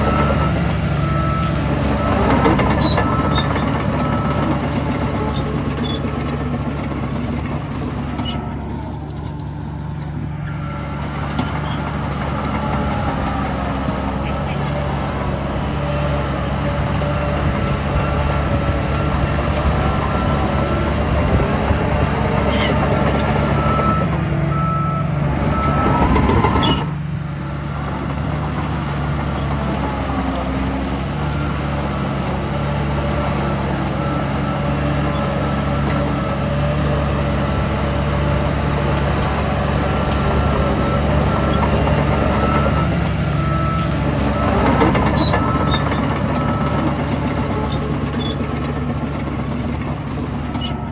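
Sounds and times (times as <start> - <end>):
reversing alarm beeping: 0.0 - 7.1, 16.7 - 26.8, 40.2 - 48.6
heavy diesel machinery running: 0.0 - 50.9.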